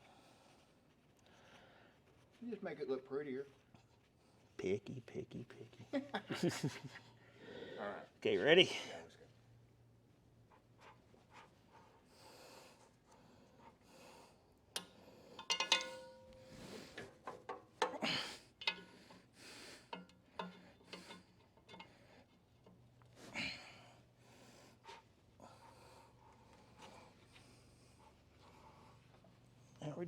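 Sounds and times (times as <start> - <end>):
heavy breathing: 0.0 - 2.4, 7.1 - 8.0, 18.0 - 22.5, 23.1 - 29.8
metal clicks: 14.8 - 18.0
ringing metal clank: 15.4 - 17.0.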